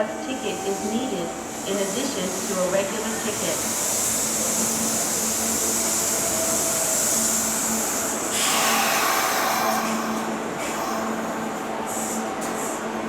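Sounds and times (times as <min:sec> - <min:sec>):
train equipment humming: 0:00.0 - 0:13.0
air hissing: 0:01.5 - 0:11.1.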